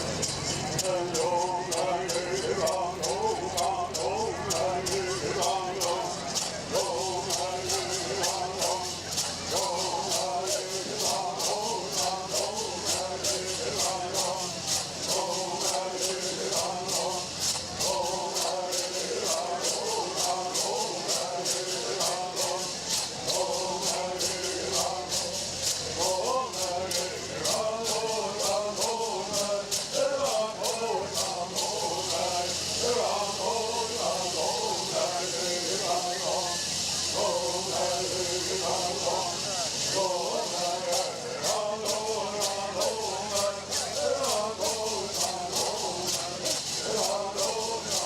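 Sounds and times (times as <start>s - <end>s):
gourd rattles shaken: 0.0s - 48.0s
voices chanting a melody: 0.0s - 48.0s
group singing in unison: 0.7s - 48.0s.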